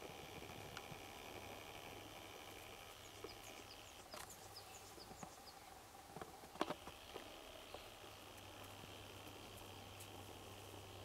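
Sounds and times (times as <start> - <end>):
small bird chirping: 2.5 - 5.8, 6.9 - 11.0.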